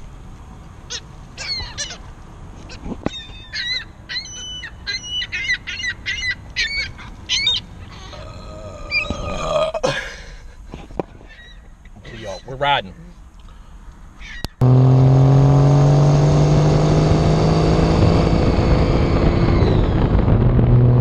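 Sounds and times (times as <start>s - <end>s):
seagulls crying: 0.9s - 2.1s, 2.7s - 8.2s, 11.2s - 12.6s, 14.2s - 14.6s.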